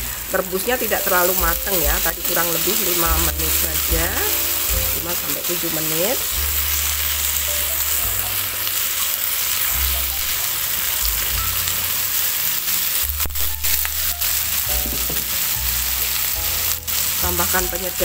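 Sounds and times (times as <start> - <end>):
vegetables sizzling in hot oil: 0.0 - 18.0.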